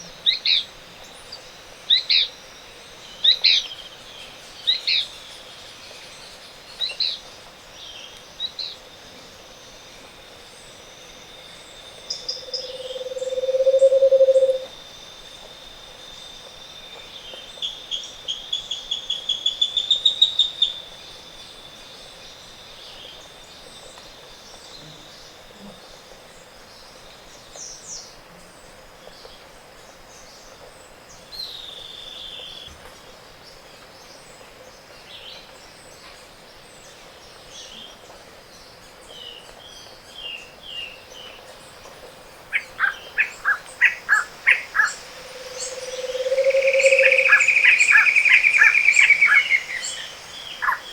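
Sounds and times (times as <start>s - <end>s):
bird singing lower notes: 11.5s - 14.7s, 42.4s - 50.9s
faint bird calls: 12.1s - 14.7s, 42.5s - 50.9s
bird singing high climbing notes: 12.2s - 14.7s, 42.6s - 50.9s.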